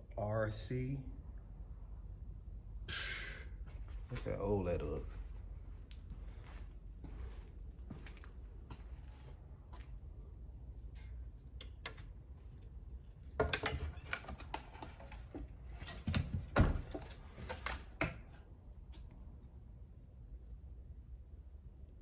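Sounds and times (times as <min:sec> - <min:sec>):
knocks and scrapes of movement: 0:13.1 - 0:18.4.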